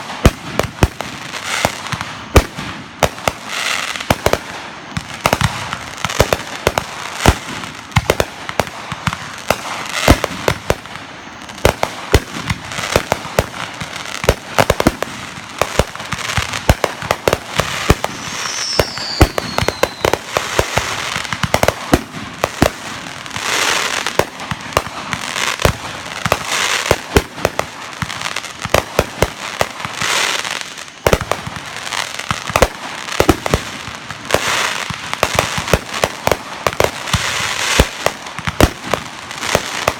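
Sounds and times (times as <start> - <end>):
fireworks bangs and cracks: 0.0 - 39.9
falling firework whistle: 17.6 - 21.1.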